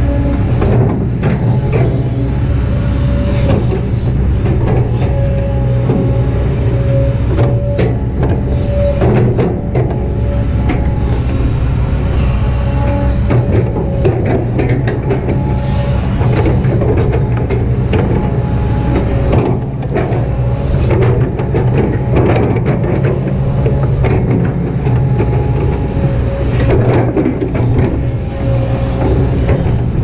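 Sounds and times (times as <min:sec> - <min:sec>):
excavator diesel engine running: 0:00.0 - 0:30.0
clanks and knocks of excavator bucket: 0:00.4 - 0:02.2, 0:06.9 - 0:11.0, 0:13.2 - 0:15.5, 0:16.2 - 0:30.0.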